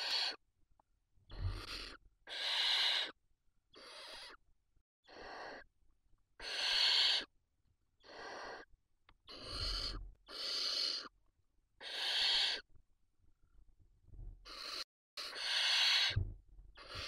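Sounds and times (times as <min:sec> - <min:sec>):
owl chicks hissing calls: 0:00.0 - 0:00.4, 0:01.3 - 0:03.2, 0:03.8 - 0:04.4, 0:05.0 - 0:05.7, 0:06.4 - 0:07.3, 0:08.0 - 0:11.2, 0:11.8 - 0:12.7, 0:14.4 - 0:17.0.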